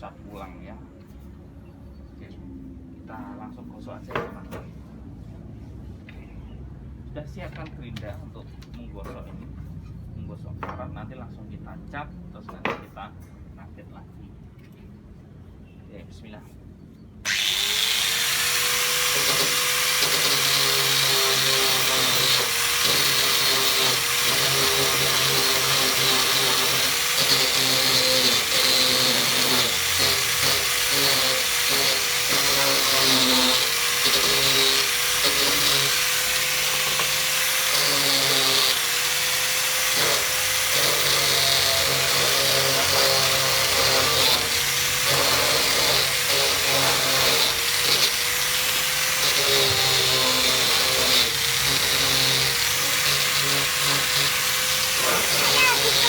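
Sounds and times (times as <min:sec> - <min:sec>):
electric grinder scouring metal: 0:17.3 - 0:56.0.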